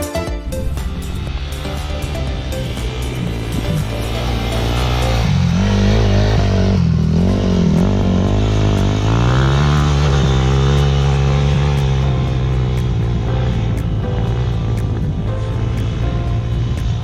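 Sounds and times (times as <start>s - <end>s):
dirt bike engine revving: 0.6s - 17.0s.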